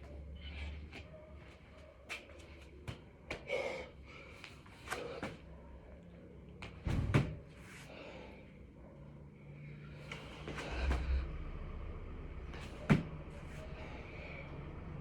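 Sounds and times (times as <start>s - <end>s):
hands and feet striking floor: 6.6s - 7.7s, 12.6s - 13.2s.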